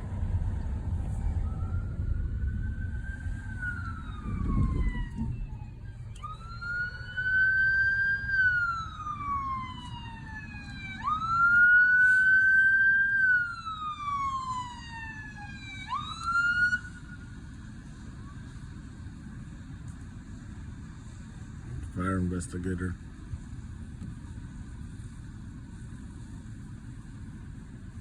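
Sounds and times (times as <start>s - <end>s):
low rumble: 0.0s - 11.5s
emergency siren wailing: 0.0s - 18.7s.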